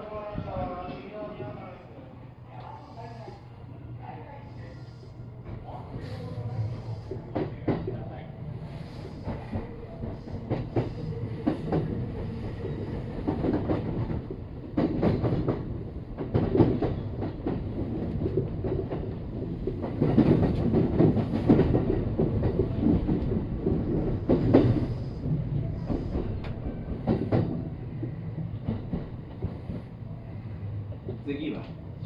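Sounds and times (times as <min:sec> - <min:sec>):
train wheels rumbling on rails: 0:02.6 - 0:32.0
rail joint clatter: 0:08.7 - 0:25.2.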